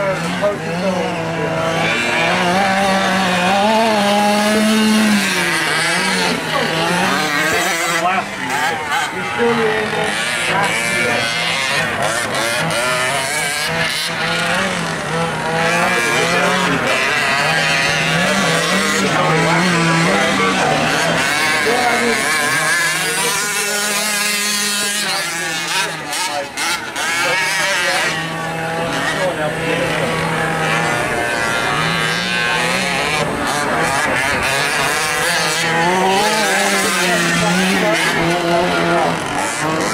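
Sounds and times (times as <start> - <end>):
small two-stroke engines revving: 0.0 - 39.9.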